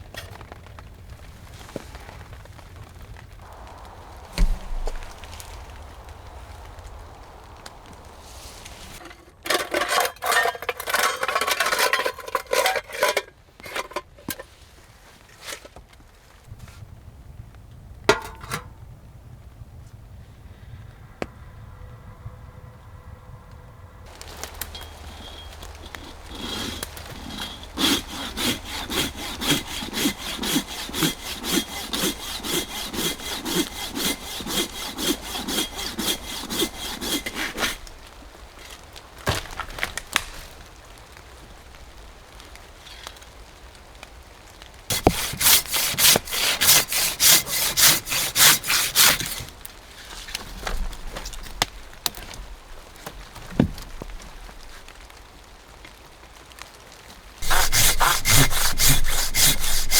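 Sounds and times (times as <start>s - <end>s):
hand saw cutting wood: 4.4s - 5.3s, 24.1s - 38.0s, 44.9s - 49.6s, 57.4s - 59.9s.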